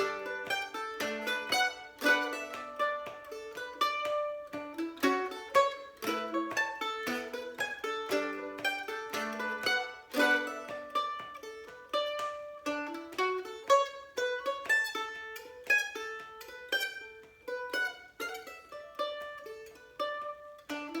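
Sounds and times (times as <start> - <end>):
plucked string melody: 0.0 - 21.0.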